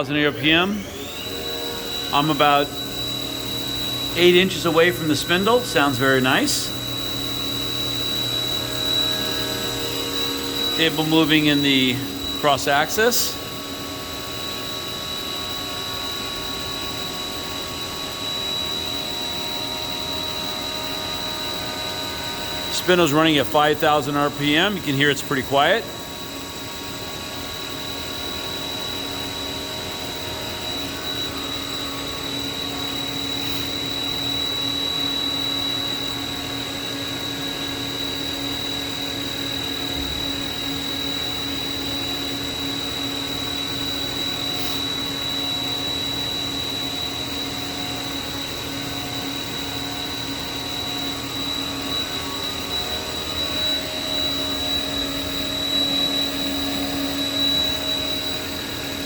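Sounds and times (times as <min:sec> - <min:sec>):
mill spindle whining: 0:00.0 - 0:59.0.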